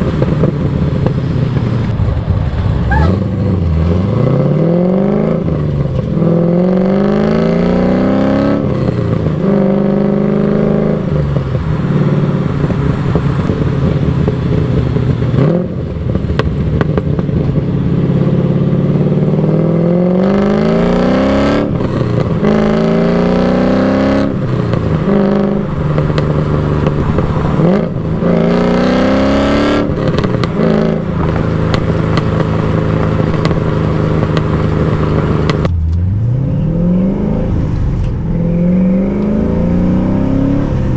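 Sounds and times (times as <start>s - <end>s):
engine and exhaust revving: 0.0s - 40.9s.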